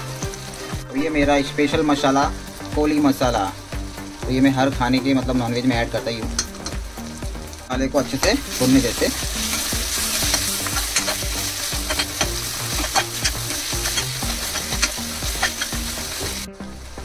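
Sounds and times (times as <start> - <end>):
spices sizzling in hot oil: 0.0 - 17.0
spoon scraping a pan: 9.3 - 16.3.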